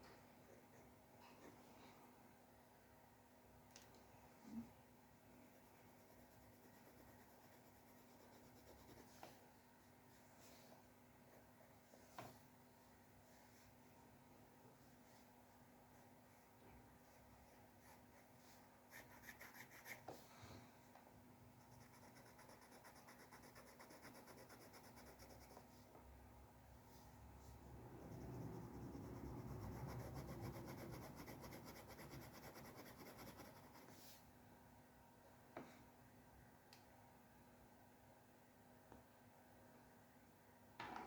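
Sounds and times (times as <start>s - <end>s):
drawing tools scratching on paper: 5.6s - 9.3s, 21.8s - 25.6s, 28.0s - 34.0s.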